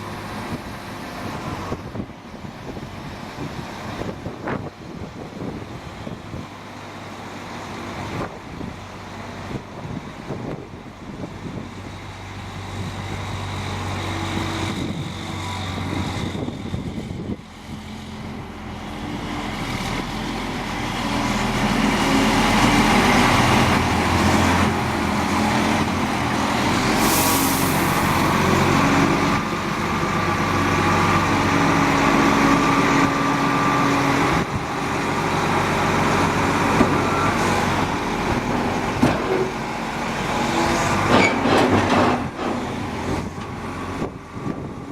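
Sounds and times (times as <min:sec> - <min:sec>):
truck diesel engine running: 0:05.5 - 0:44.9
brief hiss: 0:26.9 - 0:28.1.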